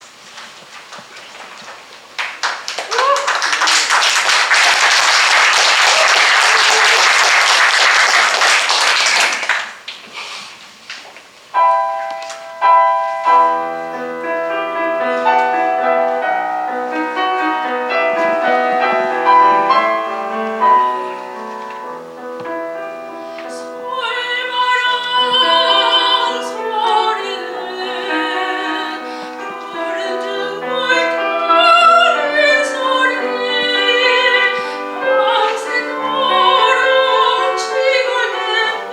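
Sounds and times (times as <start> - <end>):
piano: 0.0 - 9.9, 11.5 - 38.9
audience applause: 0.7 - 10.1
soprano singing with vibrato: 21.9 - 38.9.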